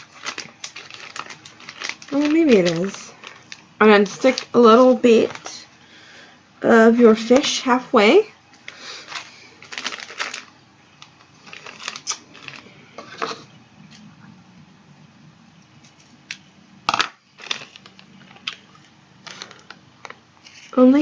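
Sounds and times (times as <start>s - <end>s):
plastic bag crinkling: 0.0s - 5.6s, 8.6s - 14.0s, 16.9s - 20.9s.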